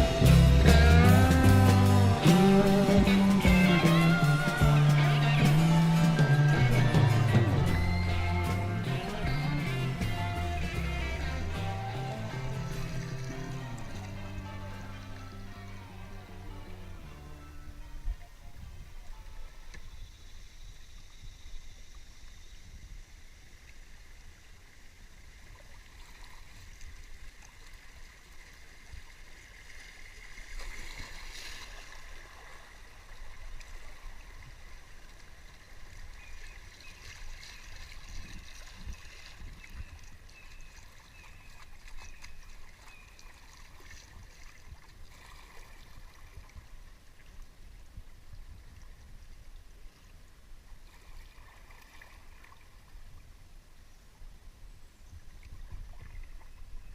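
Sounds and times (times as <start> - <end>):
river water gurgling: 0.0 - 56.9
wind rumble on microphone: 17.7 - 23.2, 54.3 - 56.9.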